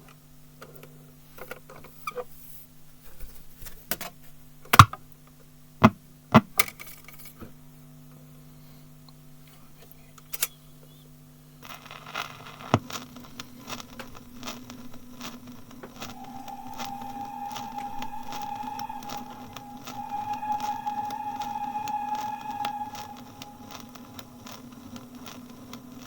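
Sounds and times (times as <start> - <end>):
steady low hum: 16.0 - 24.5.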